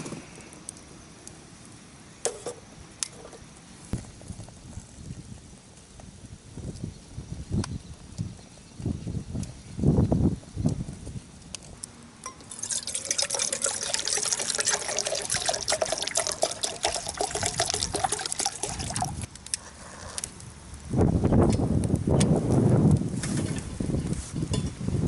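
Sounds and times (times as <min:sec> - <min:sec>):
water pouring into container: 0:12.4 - 0:19.3.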